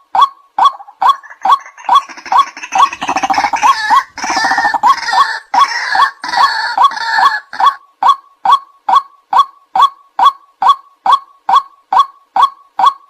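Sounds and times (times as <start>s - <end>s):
harsh rapid croaking chatter: 0.7s - 7.8s
waterhen short loud calls: 0.7s - 7.8s.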